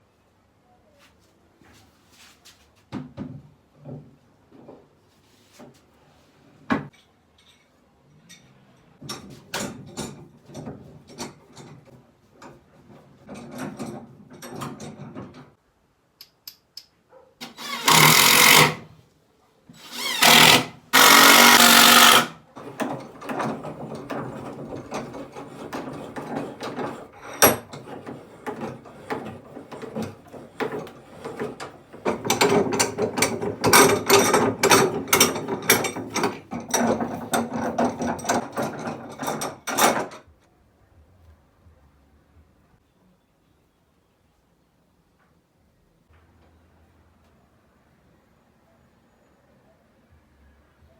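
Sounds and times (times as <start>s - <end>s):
power tool running: 17.4s - 18.9s, 19.8s - 22.4s
wood knocks and scraping: 20.0s - 40.1s.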